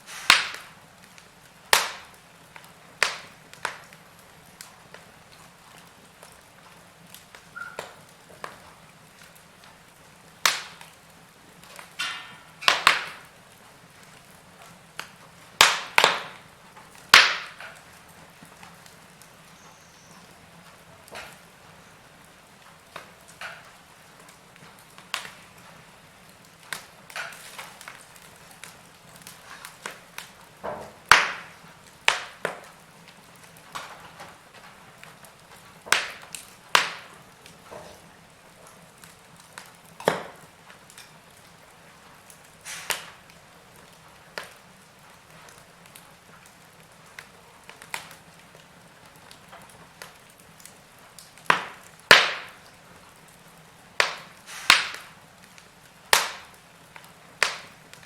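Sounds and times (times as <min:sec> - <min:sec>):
faint steady hiss: 0:00.0 - 0:58.0
fire pops and snaps: 0:00.0 - 0:58.0.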